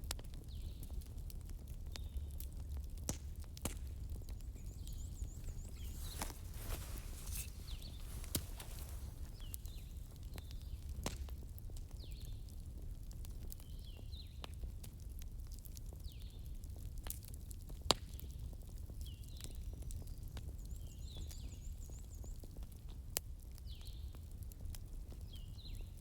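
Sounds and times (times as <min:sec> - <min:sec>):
fire crackling and popping: 0:00.1 - 0:20.8.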